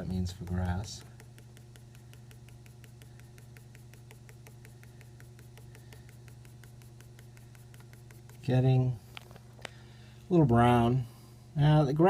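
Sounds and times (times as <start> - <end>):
pencil drawing strokes scratching: 0.0 - 8.9
steady low hum: 0.0 - 12.0.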